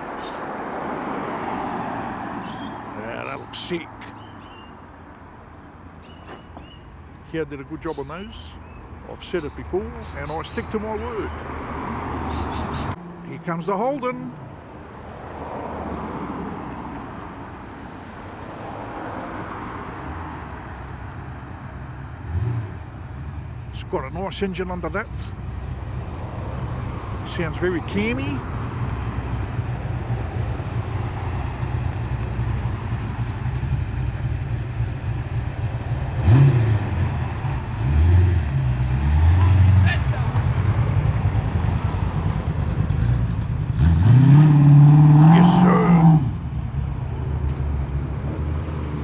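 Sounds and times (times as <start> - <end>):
lumpy car engine running: 6.0 - 11.4, 21.7 - 49.0.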